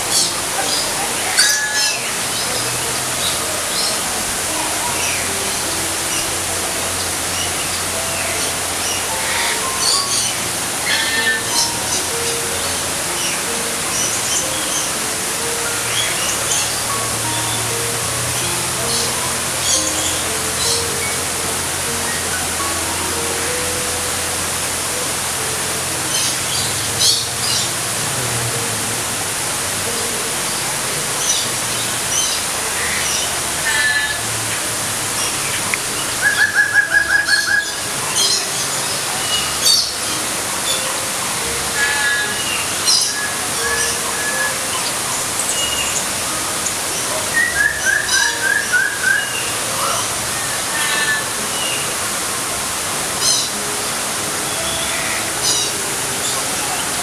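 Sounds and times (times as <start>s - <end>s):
steady rushing hiss: 0.0s - 57.0s
birds whistling: 7.0s - 23.7s, 35.2s - 41.0s, 41.7s - 51.8s.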